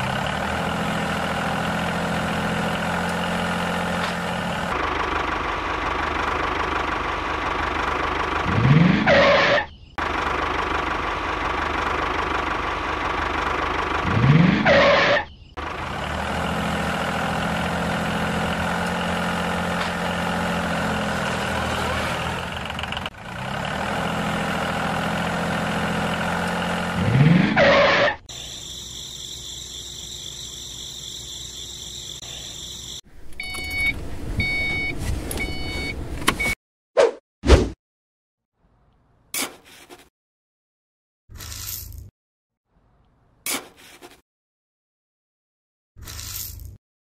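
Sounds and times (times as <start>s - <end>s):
tractor engine revving: 0.0s - 34.6s
short beeps: 33.4s - 36.6s.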